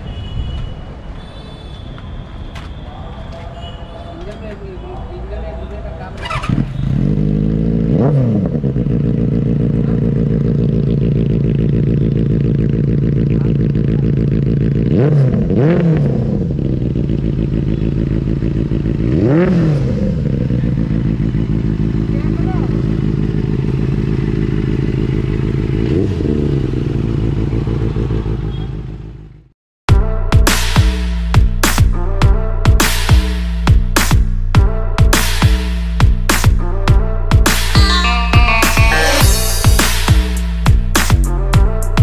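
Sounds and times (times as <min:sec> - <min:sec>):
motorcycle engine idling: 0:08.8 - 0:14.9, 0:16.6 - 0:19.0, 0:20.2 - 0:25.9.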